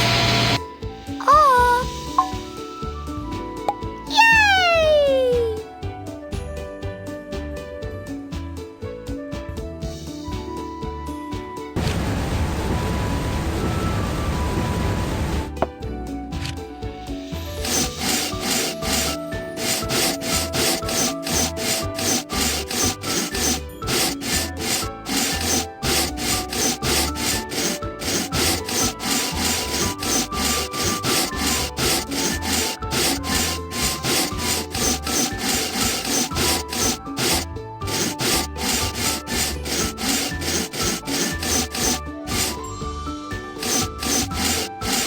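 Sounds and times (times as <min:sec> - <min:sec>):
saw cutting through wood: 0:00.0 - 0:00.6, 0:17.4 - 0:42.7, 0:43.6 - 0:45.0.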